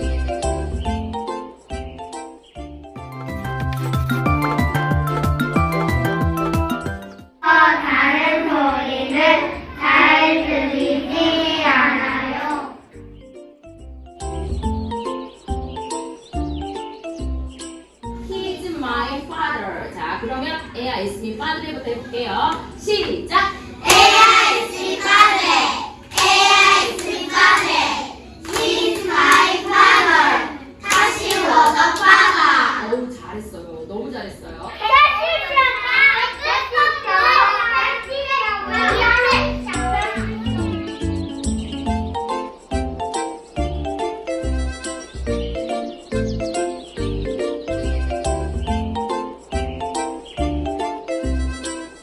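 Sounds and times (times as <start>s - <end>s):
bouncy instrumental music: 0.0s - 19.2s, 23.8s - 32.8s, 34.8s - 52.0s
children singing together: 7.4s - 12.8s, 23.8s - 32.8s, 36.1s - 40.7s.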